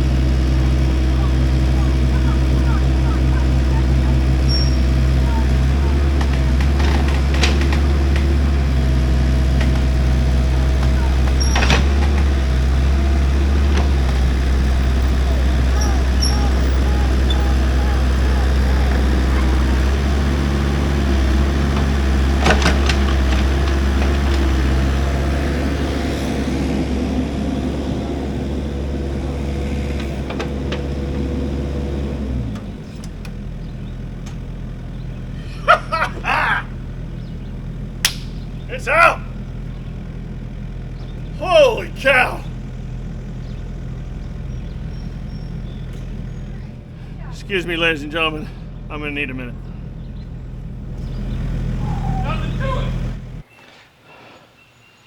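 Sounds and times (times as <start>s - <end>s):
large engine droning: 0.0s - 53.5s
short voice-like sounds: 38.7s - 39.3s, 41.4s - 42.5s.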